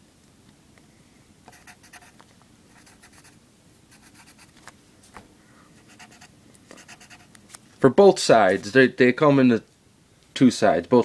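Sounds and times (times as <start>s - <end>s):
pen scratching on paper: 1.5s - 4.5s, 5.8s - 7.3s.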